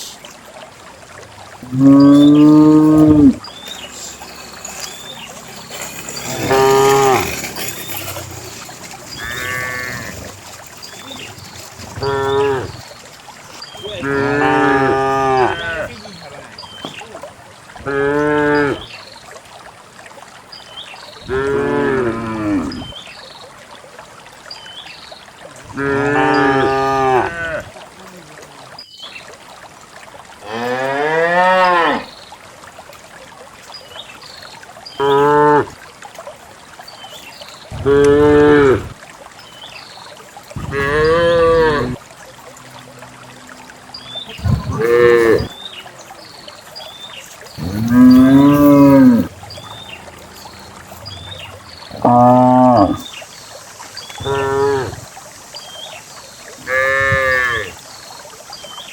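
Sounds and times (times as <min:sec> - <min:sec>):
cows mooing: 0:01.6 - 0:03.4, 0:06.2 - 0:07.8, 0:09.1 - 0:10.4, 0:11.9 - 0:12.8, 0:13.9 - 0:16.0, 0:17.8 - 0:18.8, 0:21.3 - 0:22.8, 0:25.7 - 0:27.7, 0:30.4 - 0:32.1, 0:37.8 - 0:38.9, 0:40.6 - 0:42.0, 0:44.3 - 0:45.6, 0:47.6 - 0:53.0, 0:54.2 - 0:55.1, 0:56.6 - 0:57.8.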